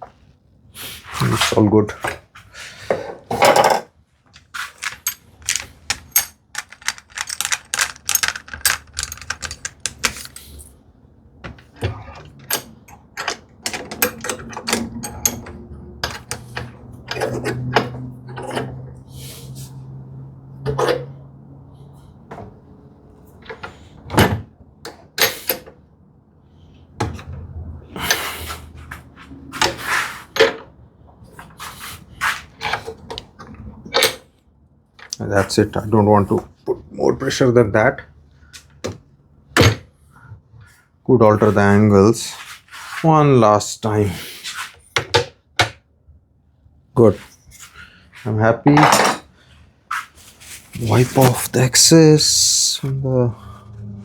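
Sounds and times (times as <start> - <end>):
clamps clicking and rattling: 4.4 - 10.7
scraping or rubbing: 4.4 - 10.7, 49.9 - 51.7.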